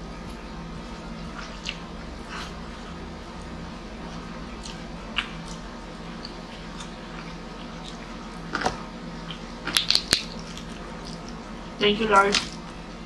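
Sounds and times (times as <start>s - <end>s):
steady low hum: 0.0s - 13.0s
chewing and lip smacks: 1.3s - 2.4s, 4.5s - 8.2s.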